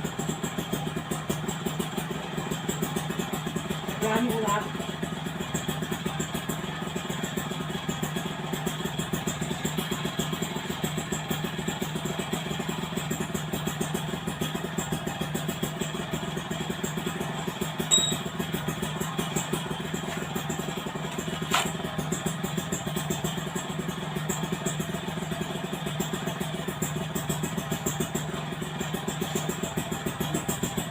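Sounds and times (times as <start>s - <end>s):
motorcycle engine idling: 0.0s - 30.9s
high-pitched chirp: 17.9s - 18.3s.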